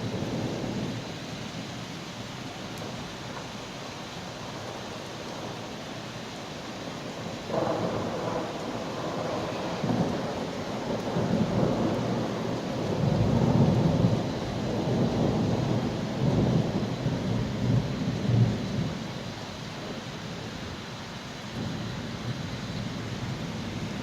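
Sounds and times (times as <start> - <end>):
steady rain: 0.0 - 24.0
thunder rumbling: 7.0 - 19.1.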